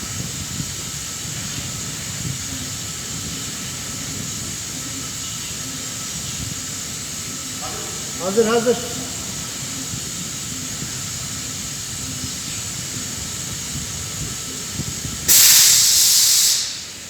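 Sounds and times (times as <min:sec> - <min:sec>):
gas hissing at burner: 0:00.0 - 0:17.0
loud rush of gas: 0:15.2 - 0:17.0.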